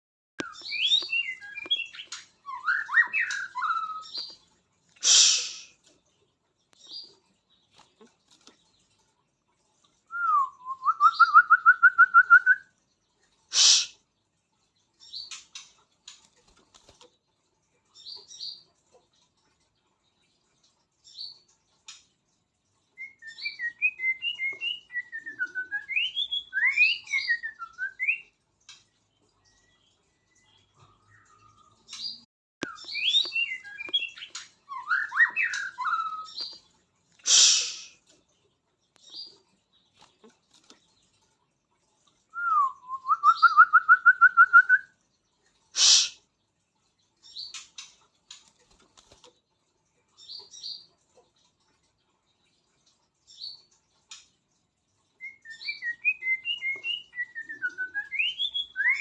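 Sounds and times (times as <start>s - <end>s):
bird singing whistled phrases: 0.4s - 4.3s, 10.1s - 12.7s, 23.0s - 28.3s, 32.6s - 36.5s, 42.3s - 45.0s, 45.8s - 46.2s, 55.2s - 59.0s
harsh bird call bursts: 5.0s - 5.8s, 13.5s - 14.0s, 37.3s - 38.0s, 45.8s - 46.2s.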